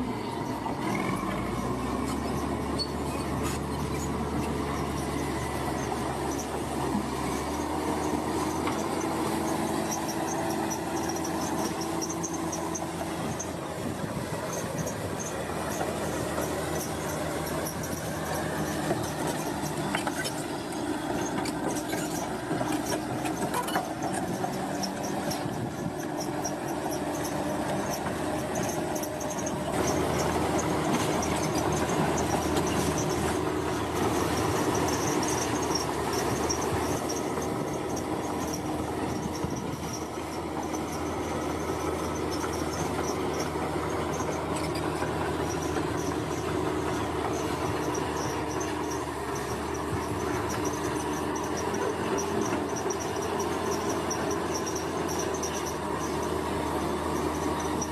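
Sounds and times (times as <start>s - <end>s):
heavy construction machinery running: 0.0s - 57.9s
high metallic squeal: 0.4s - 6.6s.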